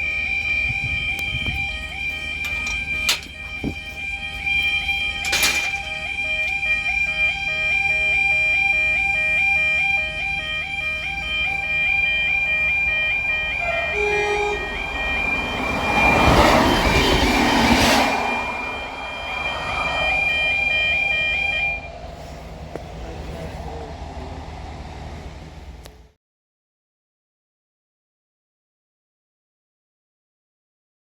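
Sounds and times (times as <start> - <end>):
level crossing alarm warbling: 0.0 - 22.1
steady high tone: 0.0 - 25.5
train passing: 0.0 - 26.2.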